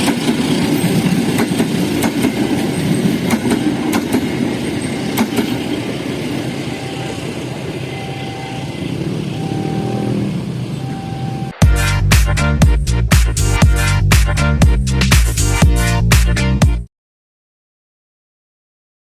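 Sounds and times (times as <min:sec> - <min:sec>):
wheels clacking over rail joints: 0:00.0 - 0:08.2
train rumbling past: 0:00.0 - 0:12.0.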